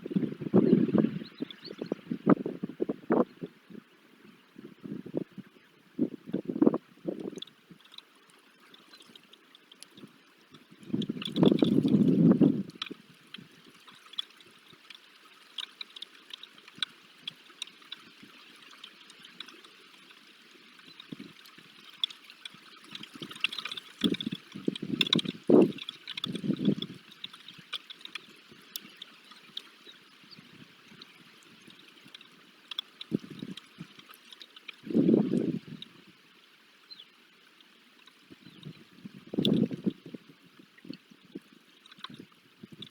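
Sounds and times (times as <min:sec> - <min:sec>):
freezing rain pattering: 0:07.3 - 0:35.7.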